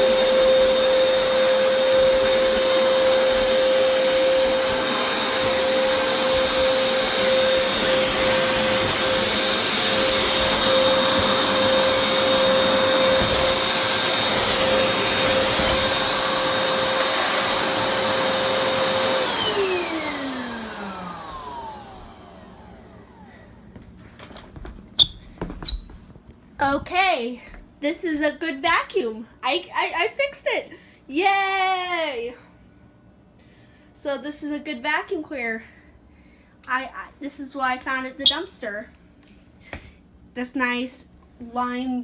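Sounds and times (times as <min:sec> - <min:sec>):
floor cleaner motor whine: 0:00.0 - 0:24.8.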